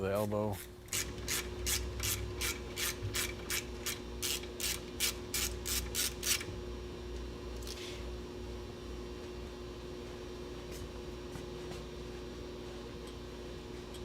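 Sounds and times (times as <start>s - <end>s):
ratchet clicking: 0.9s - 6.5s.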